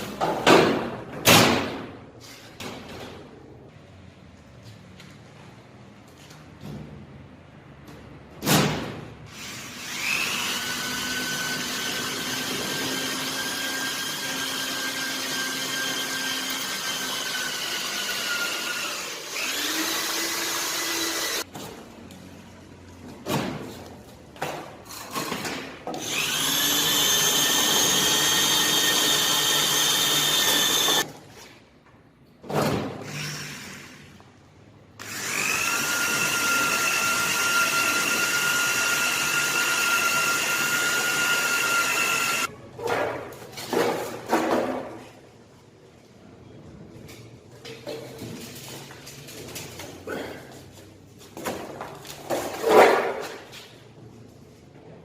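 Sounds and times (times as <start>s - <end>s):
electric drill whining: 9.4s - 21.4s, 26.0s - 31.1s, 35.0s - 42.5s.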